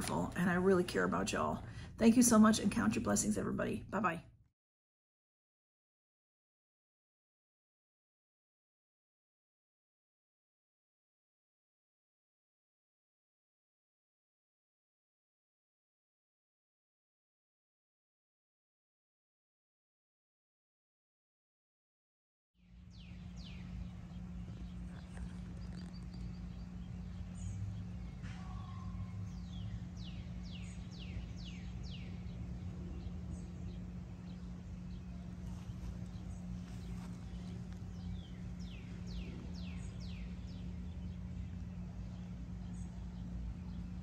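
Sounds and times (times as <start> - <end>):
steady low hum: 0.0 - 4.4, 22.6 - 44.0.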